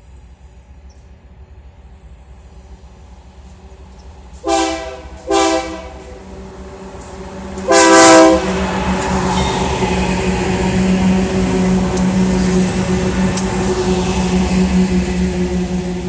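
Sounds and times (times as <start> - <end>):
train rumble: 0.0 - 16.0
locomotive air horn blasts: 4.4 - 6.3, 7.6 - 8.6.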